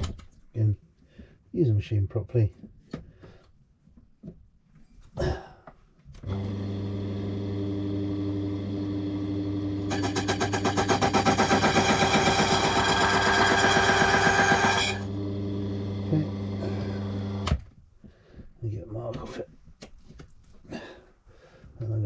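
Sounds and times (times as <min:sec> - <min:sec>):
key-cutting machine motor humming: 0:09.0 - 0:17.4.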